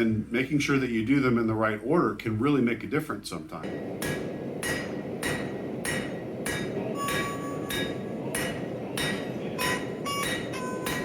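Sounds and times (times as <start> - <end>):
hammer striking steel on anvil: 3.6 - 11.0
low rushing noise: 3.7 - 11.0.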